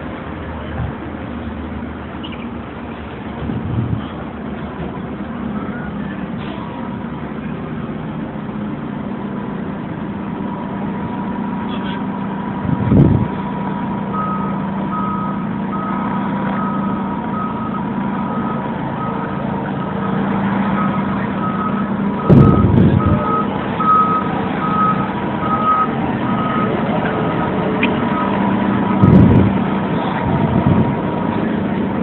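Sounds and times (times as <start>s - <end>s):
diesel engine running: 0.0s - 32.0s
low rushes: 12.4s - 32.0s
reversing alarm beeping: 14.1s - 29.4s.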